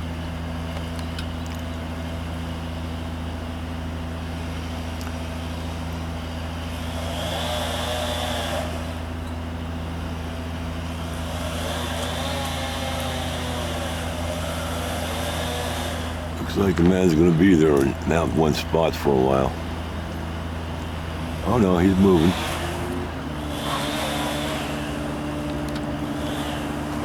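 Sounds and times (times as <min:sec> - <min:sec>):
truck engine humming: 0:00.0 - 0:27.0
higher whirring: 0:10.0 - 0:27.0.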